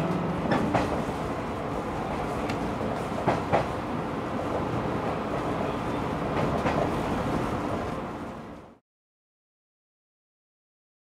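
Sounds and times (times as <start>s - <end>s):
wheels clacking over rail joints: 0.0s - 3.8s
train rumbling: 0.0s - 8.8s.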